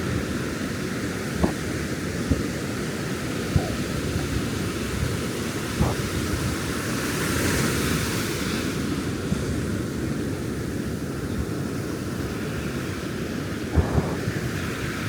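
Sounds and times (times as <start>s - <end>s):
wind rumbling on microphone: 0.0s - 15.0s
ocean surf breaking: 11.8s - 15.0s.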